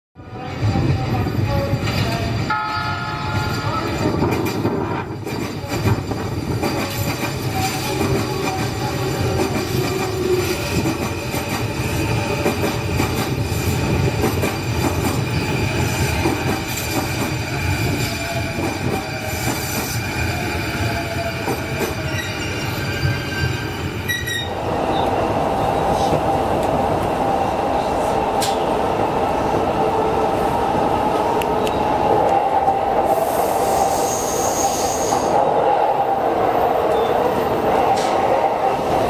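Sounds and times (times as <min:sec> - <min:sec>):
wheels squealing on rails: 0:00.4 - 0:26.2, 0:33.0 - 0:35.6
train running gear rumbling: 0:03.3 - 0:33.8.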